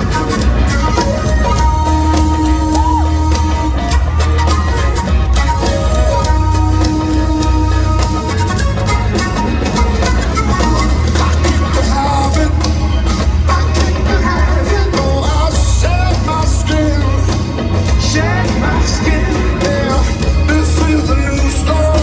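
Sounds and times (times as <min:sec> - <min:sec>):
live rock band playing: 0:00.0 - 0:22.0
man singing: 0:11.1 - 0:22.0.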